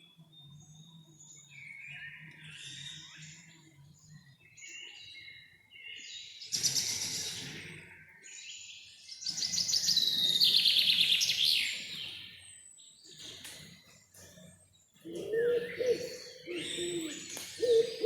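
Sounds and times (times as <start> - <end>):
songbirds trilling: 0.0 - 18.0
soft high bird calls: 15.1 - 18.0.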